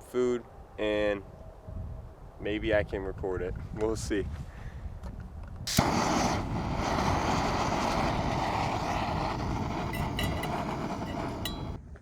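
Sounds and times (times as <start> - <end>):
camping stove burner hissing: 5.7 - 11.8.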